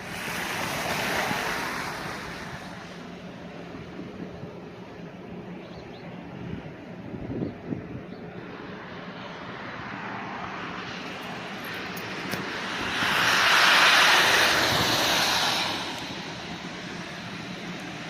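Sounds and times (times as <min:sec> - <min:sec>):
car road noise: 0:00.0 - 0:18.0
passing vehicle rushing hiss: 0:08.5 - 0:18.0.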